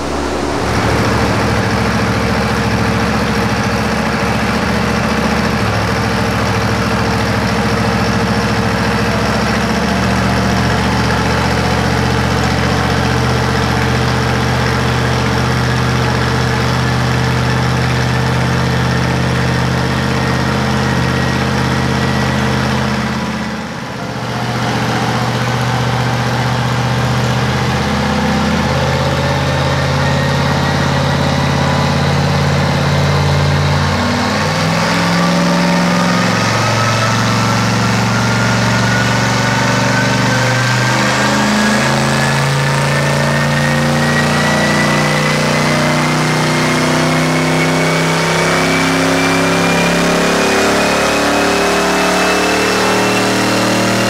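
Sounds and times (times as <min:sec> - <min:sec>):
faint turbo whine: 0:00.0 - 0:07.5, 0:16.0 - 0:54.0
engine running steadily: 0:00.0 - 0:14.6.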